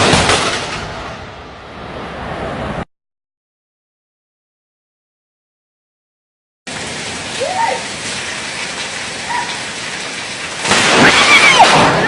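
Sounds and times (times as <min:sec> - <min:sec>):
rain falling: 0:06.7 - 0:12.0.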